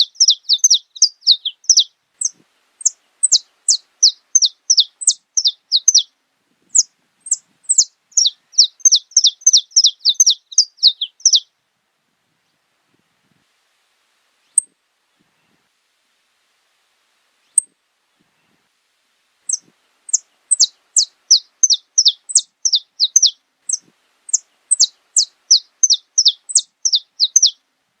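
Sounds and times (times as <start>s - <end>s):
finch singing: 0.0s - 6.1s, 6.7s - 11.5s, 19.5s - 27.6s.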